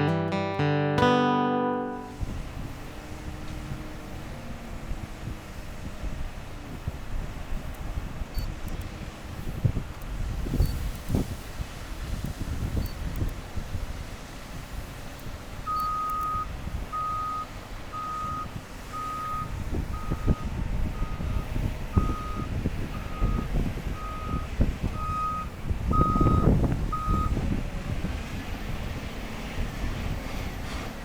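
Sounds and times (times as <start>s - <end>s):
diesel engines rumbling: 2.2s - 31.0s
backup alarm beeping: 15.7s - 27.3s.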